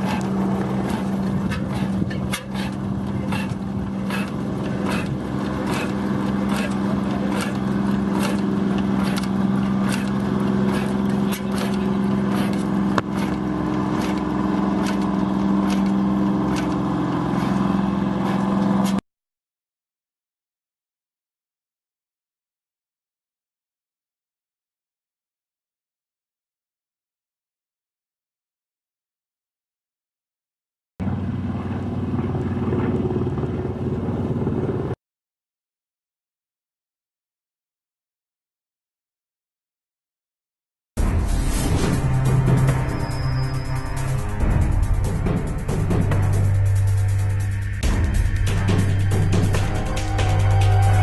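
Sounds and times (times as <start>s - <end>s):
engine droning: 0.0s - 19.0s, 31.0s - 35.0s, 41.0s - 51.0s.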